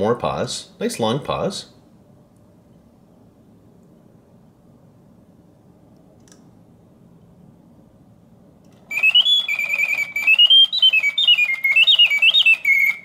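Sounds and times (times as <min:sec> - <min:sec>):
faint low hum: 0:00.0 - 0:13.0
mechanical bird whistle warbling: 0:08.8 - 0:13.0.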